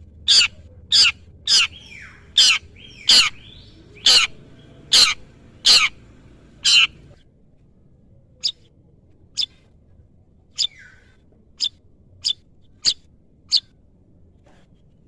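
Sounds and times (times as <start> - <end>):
shrike harsh calls: 0.3 - 7.1.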